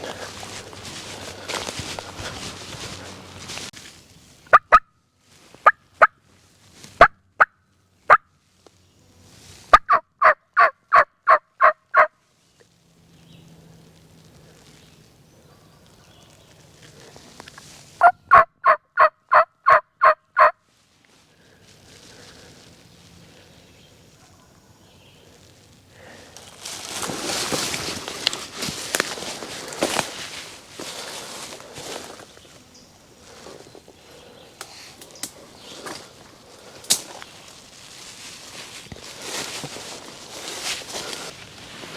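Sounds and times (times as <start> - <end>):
turkey call clucks: 4.5 - 4.9, 9.7 - 12.1, 17.5 - 20.6
turkey call yelps: 9.7 - 12.1, 18.0 - 20.6.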